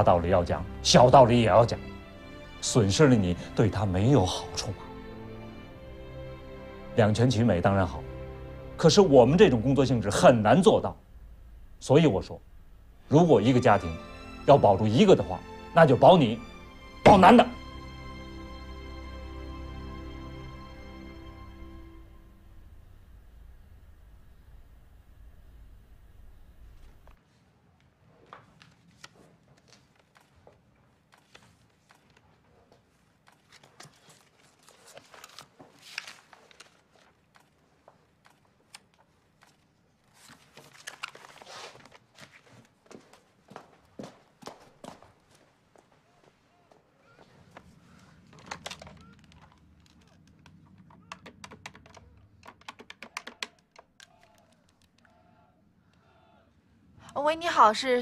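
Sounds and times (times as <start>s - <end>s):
paper rustling and tapping: 28.2s - 43.3s, 47.2s - 55.1s.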